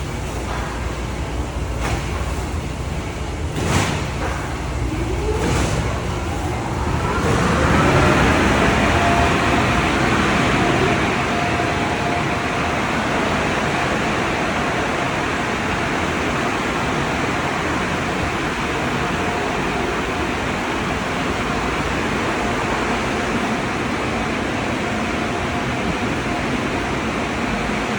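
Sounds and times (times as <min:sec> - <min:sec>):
dryer blowers whining: 0:00.0 - 0:27.9
loud rush of air: 0:01.7 - 0:15.5.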